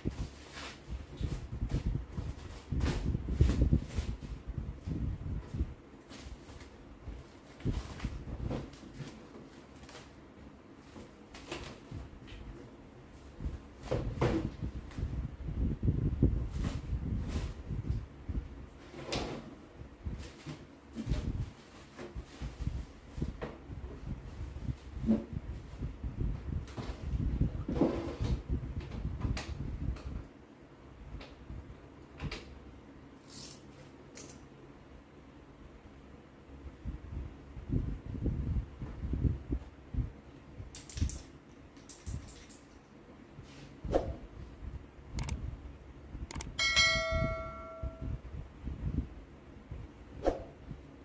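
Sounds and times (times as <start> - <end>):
sharp clicks and knocks: 45.2 - 45.4.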